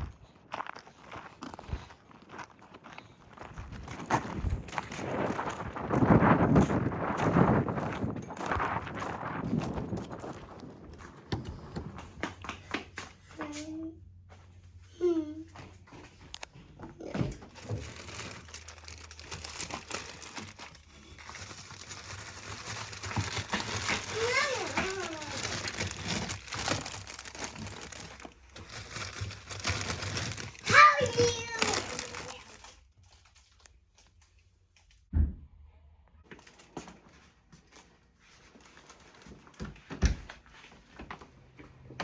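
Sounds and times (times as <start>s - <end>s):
wrapping crinkling: 3.6s - 11.2s, 17.1s - 34.4s.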